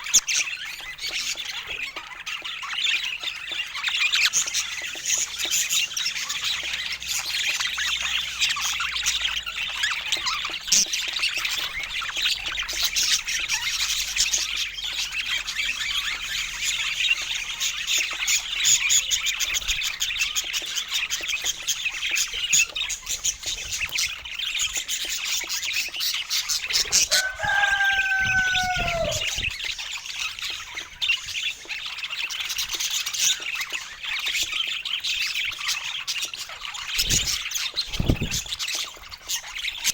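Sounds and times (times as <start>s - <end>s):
budgies chirping: 0.0s - 39.9s
low falling bird call: 27.0s - 29.7s.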